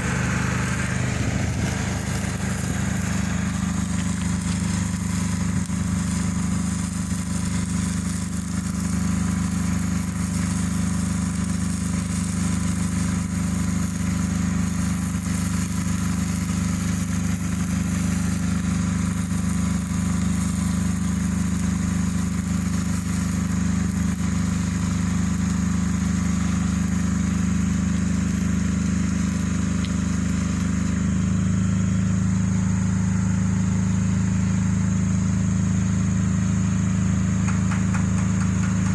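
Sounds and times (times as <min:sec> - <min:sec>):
excavator diesel engine running: 0:00.0 - 0:08.4, 0:29.9 - 0:38.9.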